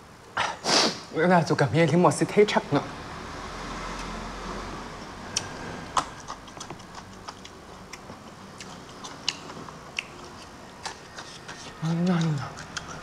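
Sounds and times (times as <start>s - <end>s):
person chewing food: 5.3s - 13.0s
wet lip and tongue smacks: 5.4s - 13.0s.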